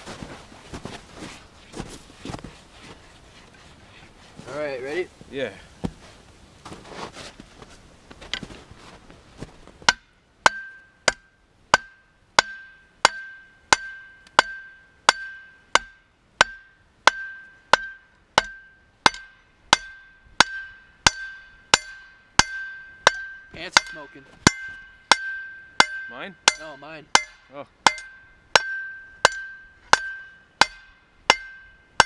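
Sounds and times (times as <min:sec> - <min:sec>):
hammer striking steel on anvil: 0:09.9 - 0:32.0.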